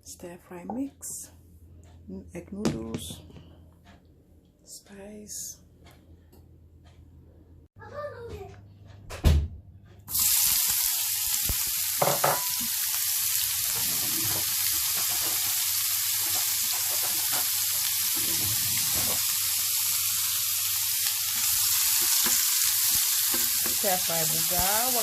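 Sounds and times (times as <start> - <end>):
food sizzling in oil: 10.1 - 25.0.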